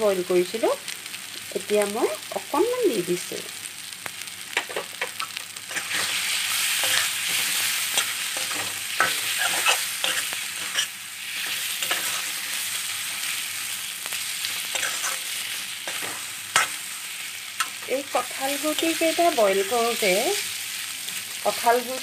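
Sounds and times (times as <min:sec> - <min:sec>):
seeds sizzling in oil: 0:00.0 - 0:22.0
metal spoon scraping a pan: 0:04.5 - 0:13.5, 0:14.1 - 0:19.9.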